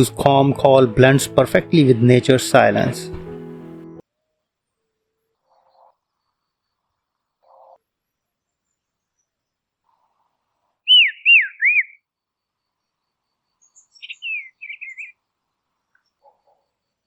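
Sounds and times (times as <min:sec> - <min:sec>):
bird twittering: 0:10.9 - 0:12.0, 0:13.6 - 0:15.2
songbird whistled notes: 0:10.9 - 0:12.0, 0:14.0 - 0:15.2.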